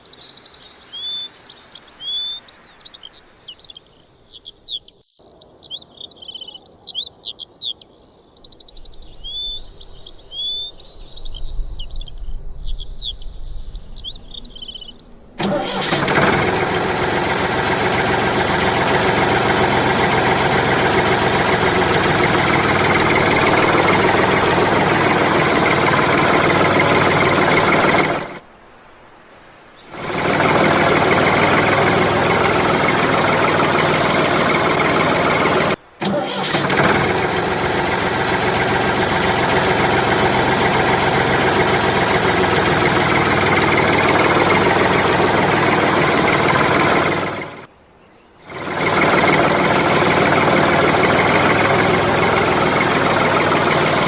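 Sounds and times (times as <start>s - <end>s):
birds chirping: 0.0s - 15.9s, 16.6s - 28.4s, 29.7s - 54.0s
loud steady engine: 15.4s - 28.4s, 29.9s - 47.7s, 48.5s - 54.0s.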